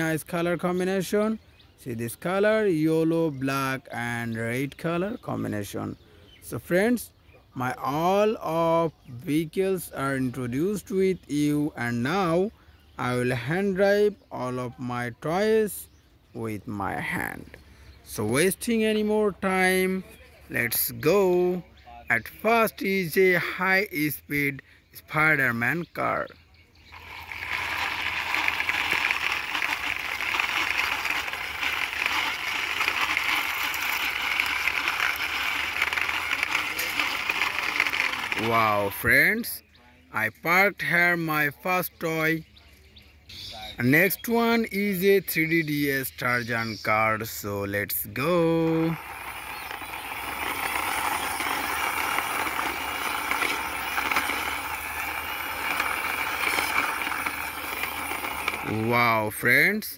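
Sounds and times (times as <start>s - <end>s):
toy car wheels rattling: 0.0s - 1.1s, 9.3s - 12.4s, 25.0s - 39.6s, 43.8s - 59.9s.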